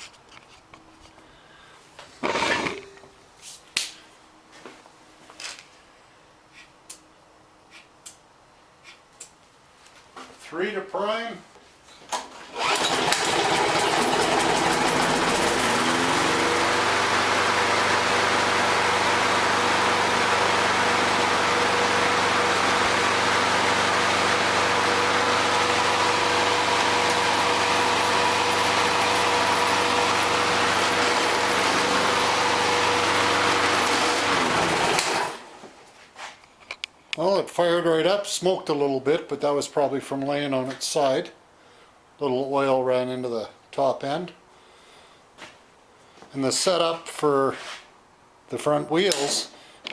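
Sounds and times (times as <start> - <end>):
lawn mower engine running: 2.2 - 3.1, 12.4 - 35.7
lawn mower pull-start: 2.2 - 3.1, 12.1 - 35.7, 49.1 - 49.9.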